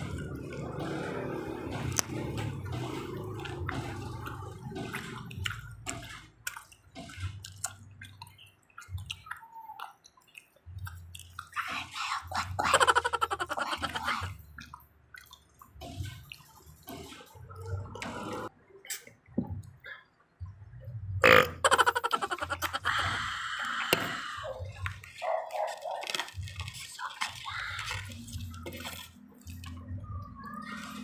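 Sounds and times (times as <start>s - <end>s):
people chewing with wet mouth sounds: 0.0s - 31.0s
wet sucking sound: 21.3s - 29.8s.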